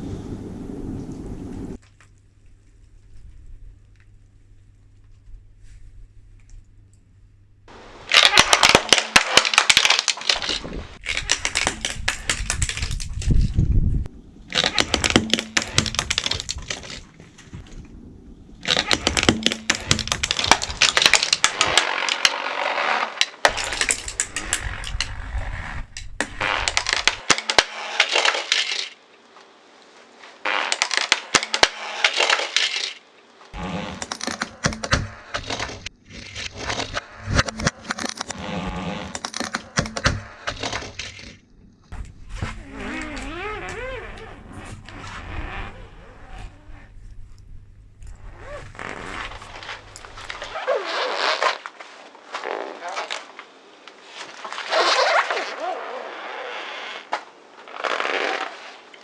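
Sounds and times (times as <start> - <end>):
brittle objects crushed under tyre: 8.1 - 13.6, 14.5 - 17.6, 18.6 - 29.0, 30.6 - 33.0, 33.8 - 41.4.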